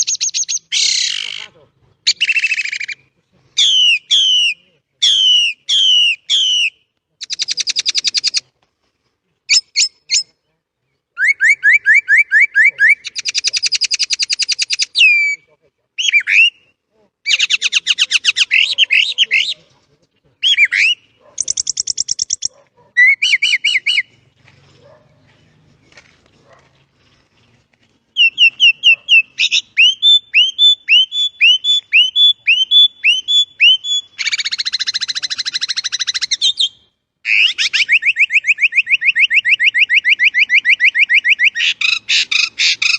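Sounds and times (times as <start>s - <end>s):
starling singing whistles and trills: 0.0s - 8.4s, 9.5s - 10.4s, 11.2s - 19.7s, 20.4s - 24.2s, 28.1s - 42.9s.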